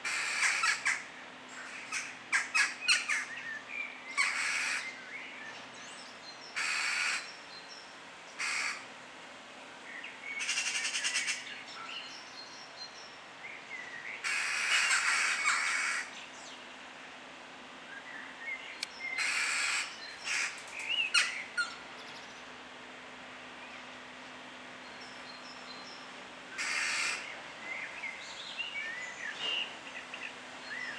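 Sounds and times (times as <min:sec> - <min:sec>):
birds harsh raspy calls: 0:00.0 - 0:05.0, 0:06.5 - 0:07.4, 0:08.4 - 0:08.8, 0:10.4 - 0:11.6, 0:14.2 - 0:16.2, 0:19.1 - 0:21.8, 0:26.5 - 0:27.9.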